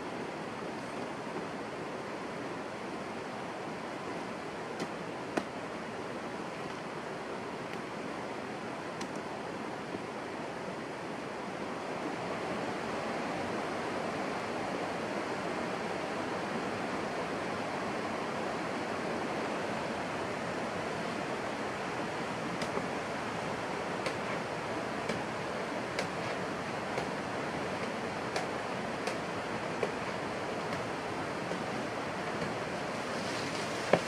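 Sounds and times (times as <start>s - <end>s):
steady rushing noise: 21.8s - 34.0s.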